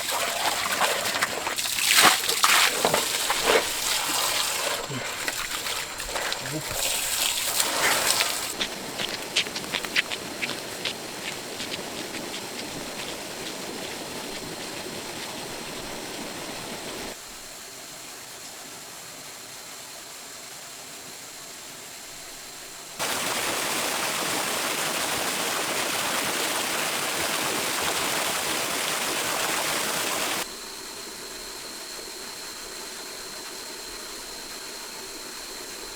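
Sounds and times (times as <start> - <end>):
water splashing: 0.0 - 17.2
stream rushing: 1.2 - 17.2, 23.0 - 30.4.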